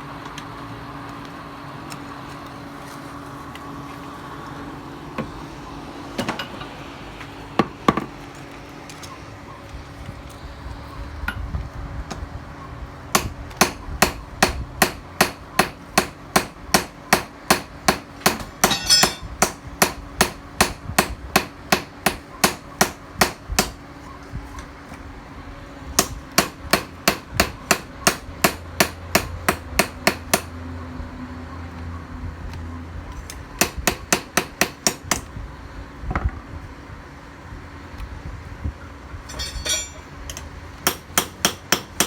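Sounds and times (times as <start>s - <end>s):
hammer striking steel: 13.1s - 23.8s, 39.3s - 42.0s.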